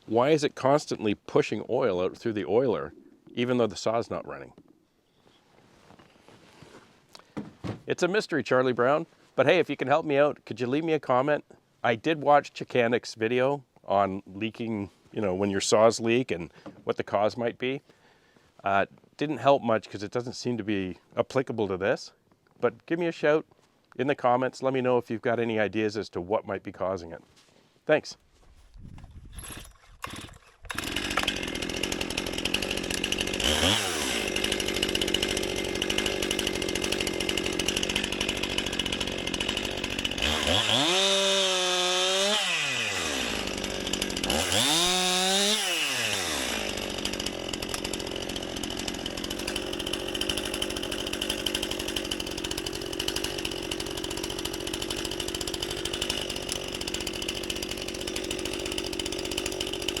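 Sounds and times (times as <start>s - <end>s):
chainsaw engine revving: 29.5s - 60.0s.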